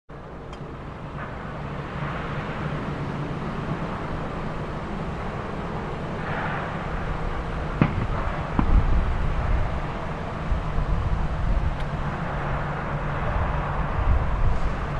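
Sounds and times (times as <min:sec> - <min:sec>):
jet engines running: 0:00.1 - 0:14.9
sharp knocks: 0:07.8 - 0:09.1.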